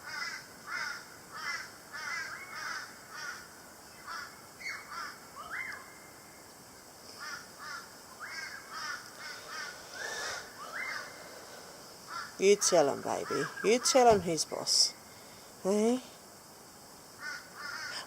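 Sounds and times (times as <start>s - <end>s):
crows cawing: 0.0s - 5.8s, 7.2s - 12.4s, 17.2s - 18.0s.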